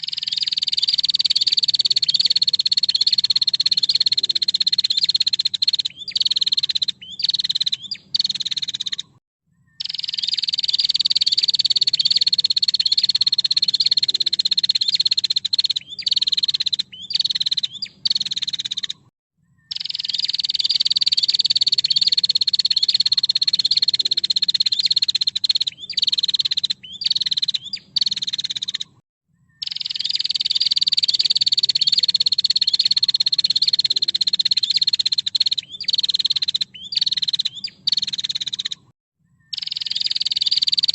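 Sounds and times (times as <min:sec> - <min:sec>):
short sharp bird calls: 0:00.0 - 0:29.0
bird rattling trills: 0:09.8 - 0:19.0, 0:19.7 - 0:28.9, 0:29.6 - 0:38.8, 0:39.5 - 0:40.9.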